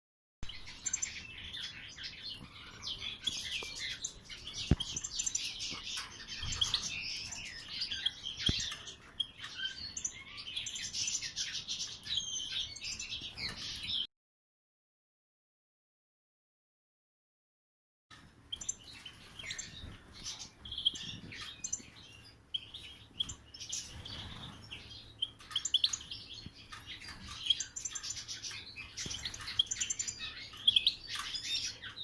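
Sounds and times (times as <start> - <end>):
finches twittering: 18.6 - 32.0.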